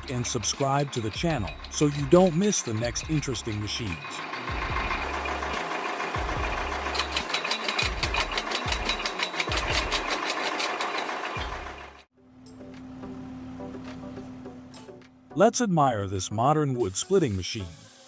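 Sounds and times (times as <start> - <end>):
fast even rattle: 0.0 - 12.0
wood splitter mechanical clatter: 0.0 - 12.1.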